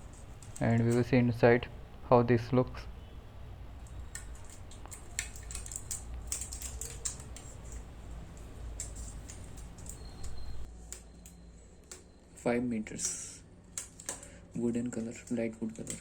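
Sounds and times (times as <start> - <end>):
faint low hum: 0.0 - 16.0
plastic wrapping crinkling: 3.7 - 10.7.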